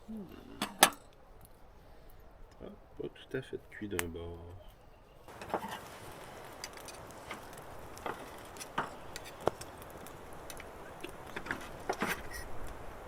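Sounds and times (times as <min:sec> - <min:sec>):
campfire crackling and popping: 0:00.2 - 0:04.7, 0:05.3 - 0:13.0.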